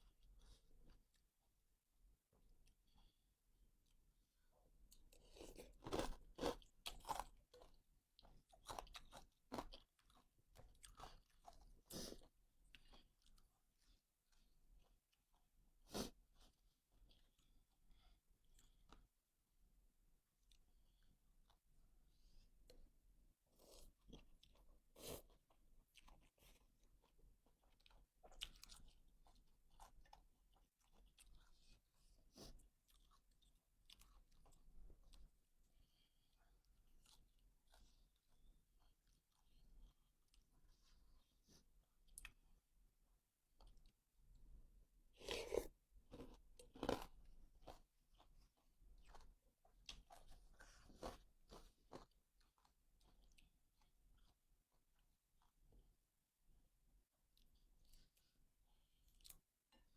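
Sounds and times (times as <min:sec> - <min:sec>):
person chewing with small crunches: 0:00.0 - 0:01.4, 0:02.4 - 0:19.3, 0:20.4 - 0:56.0, 0:57.1 - 0:59.9
person chewing crunchy food: 0:04.9 - 0:13.5, 0:45.1 - 0:54.4.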